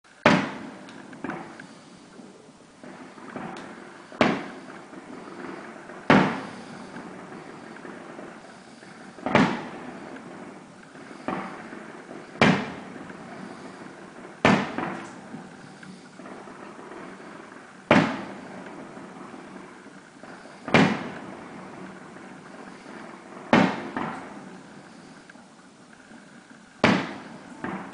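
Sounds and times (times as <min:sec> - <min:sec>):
fireworks bursting: 0:00.0 - 0:27.9
steady background hum: 0:00.1 - 0:27.9.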